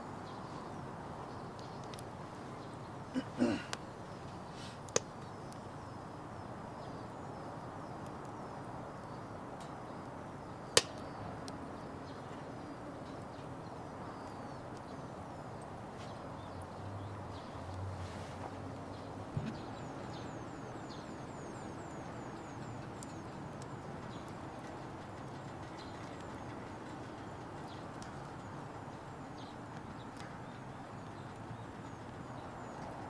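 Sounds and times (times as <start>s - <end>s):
wood fire hissing: 3.2s - 5.7s.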